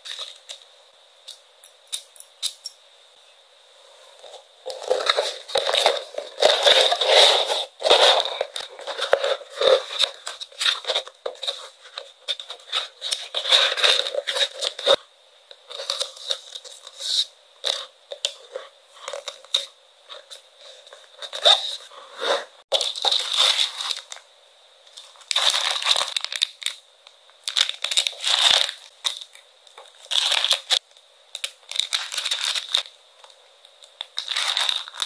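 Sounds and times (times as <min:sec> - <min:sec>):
packing paper and plastic crinkling: 0:04.2 - 0:15.0, 0:22.7 - 0:24.2, 0:24.9 - 0:26.8, 0:27.4 - 0:35.0.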